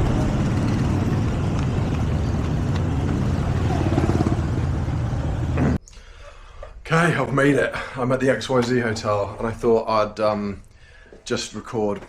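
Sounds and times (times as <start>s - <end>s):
motor scooter engine rumble: 0.0s - 5.8s
road and wind noise: 0.0s - 5.8s.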